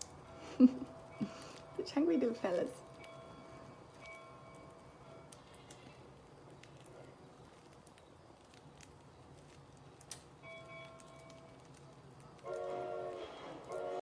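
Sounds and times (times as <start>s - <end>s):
birds pecking seeds: 0.0s - 14.0s
ringing tone: 0.2s - 5.4s.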